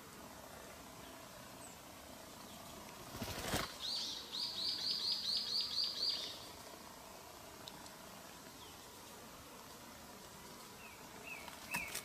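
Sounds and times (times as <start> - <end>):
rustling: 3.0 - 3.9
bird chirping: 3.7 - 6.5.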